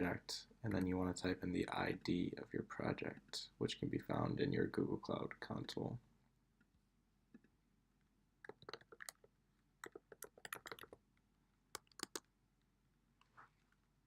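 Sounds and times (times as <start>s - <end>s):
faint keyboard typing: 8.4s - 11.0s, 11.7s - 12.3s.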